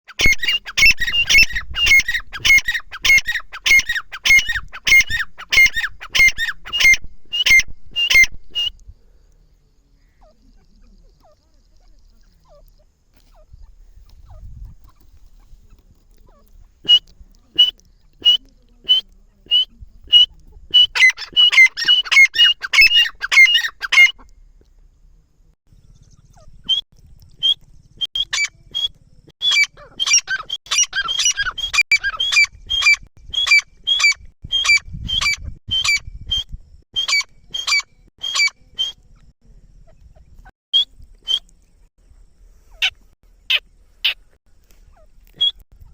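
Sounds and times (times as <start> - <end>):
francolin calling: 0.1 - 9.2, 9.8 - 24.4.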